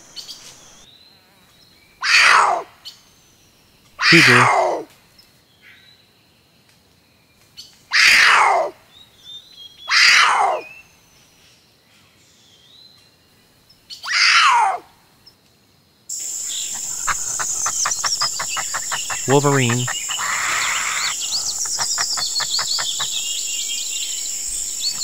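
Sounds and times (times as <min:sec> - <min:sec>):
steady high hiss: 0:00.0 - 0:00.8, 0:16.1 - 0:25.0
cougar calling: 0:04.0 - 0:04.8, 0:16.1 - 0:25.0
faint bird chirps: 0:16.1 - 0:25.0.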